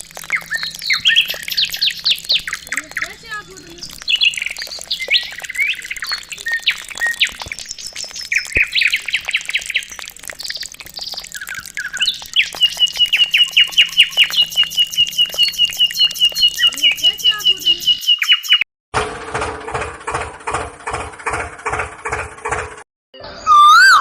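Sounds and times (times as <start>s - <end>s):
birds chirping: 0.0s - 18.6s.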